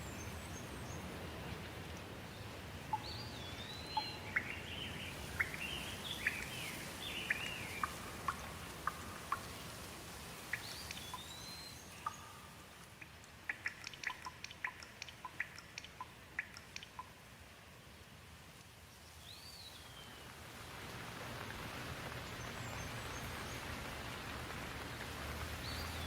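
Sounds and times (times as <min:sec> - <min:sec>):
water drips: 0:00.0 - 0:17.8, 0:18.5 - 0:26.0
light rain falling: 0:00.0 - 0:26.0
songbird whistling: 0:02.9 - 0:08.1, 0:10.5 - 0:12.5.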